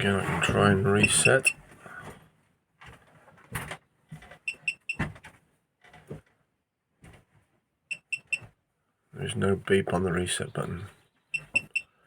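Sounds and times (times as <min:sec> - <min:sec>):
short high-pitched beeps: 0:07.9 - 0:08.4, 0:11.4 - 0:11.9.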